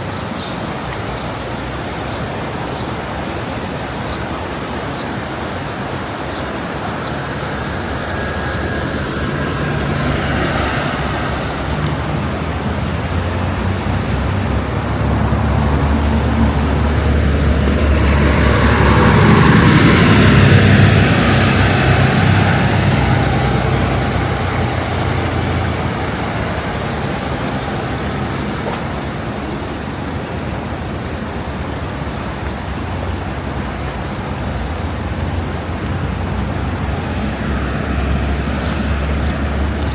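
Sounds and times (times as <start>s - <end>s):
vehicle driving past: 5.1s - 31.5s.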